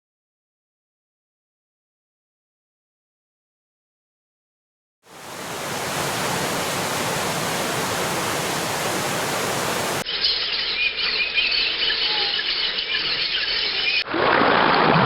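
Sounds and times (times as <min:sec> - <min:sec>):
flowing water: 0:05.1 - 0:10.0
waterfall rushing: 0:05.1 - 0:10.0
birds chirping: 0:05.2 - 0:10.0.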